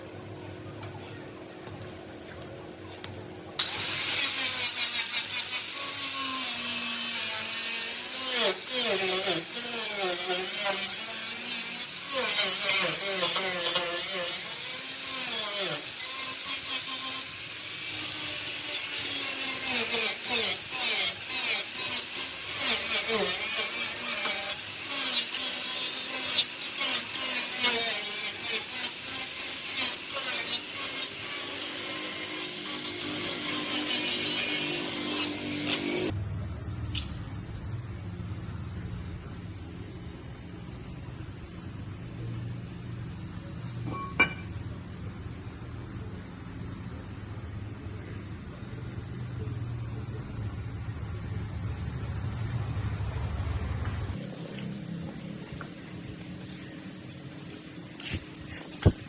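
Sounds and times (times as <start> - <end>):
tool rasping on metal: 3.6 - 36.1, 54.2 - 59.0.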